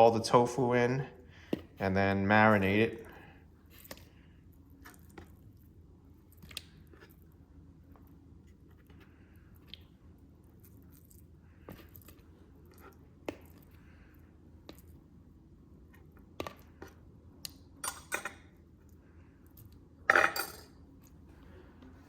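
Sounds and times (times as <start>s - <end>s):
kitchenware clatter: 20.1s - 20.8s.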